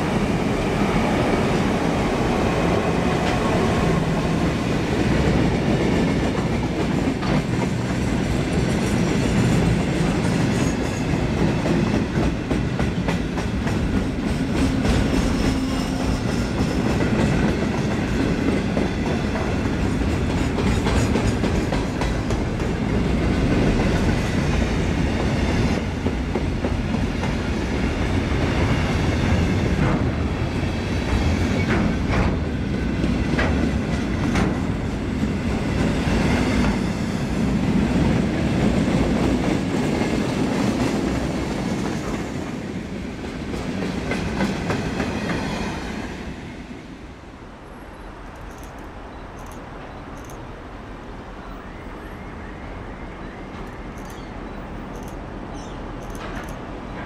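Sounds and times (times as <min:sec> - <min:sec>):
freight train rolling past: 0:00.0 - 0:57.0
wheels clacking over rail joints: 0:31.0 - 0:36.9, 0:56.0 - 0:57.0.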